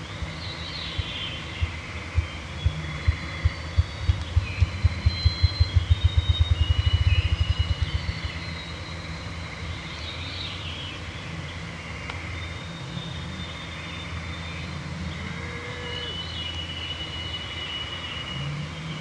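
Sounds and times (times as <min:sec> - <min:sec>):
steady low hum: 0:00.0 - 0:19.0
songbirds whistling: 0:00.1 - 0:11.1, 0:15.5 - 0:19.0
grouse drumming thumps: 0:00.2 - 0:08.5.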